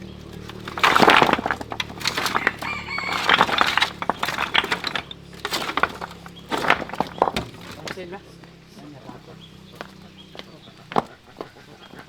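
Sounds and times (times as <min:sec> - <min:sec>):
knocks and clatters of handling: 0:00.0 - 0:12.0
chicken calling: 0:02.3 - 0:03.5.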